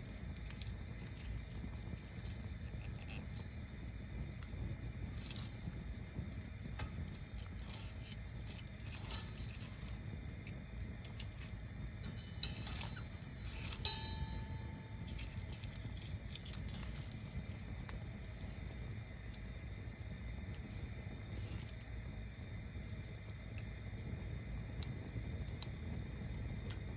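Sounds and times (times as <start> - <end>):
bonfire crackling and popping: 0.0 - 26.9
fire low rumble: 0.0 - 26.9
brief ringing note: 12.4 - 15.4.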